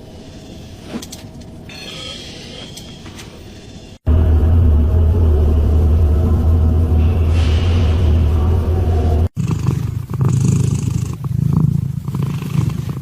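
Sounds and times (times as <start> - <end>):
low hum: 3.6 - 9.4
cat purring: 9.4 - 13.0.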